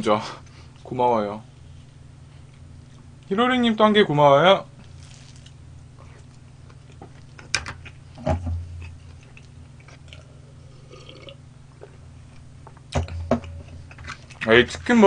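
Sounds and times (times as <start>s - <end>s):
steady low hum: 0.0s - 15.0s
chewing mouth noises: 8.8s - 12.0s.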